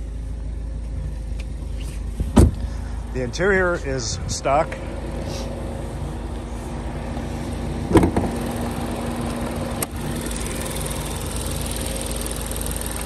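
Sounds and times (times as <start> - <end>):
car engine idling: 0.0 - 13.0
loud thump: 2.2 - 2.7, 7.9 - 8.3.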